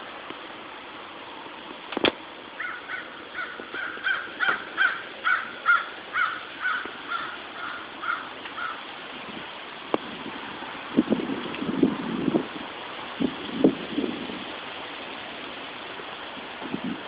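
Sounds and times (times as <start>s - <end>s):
bird calling harshly: 2.6s - 8.9s.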